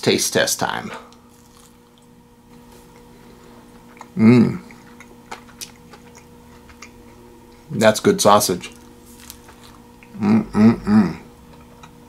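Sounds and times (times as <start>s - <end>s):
faint steady hum: 0.0s - 12.0s
man chewing: 1.1s - 7.7s, 8.6s - 12.0s
closed-mouth hum of approval: 4.0s - 4.9s, 10.0s - 11.5s.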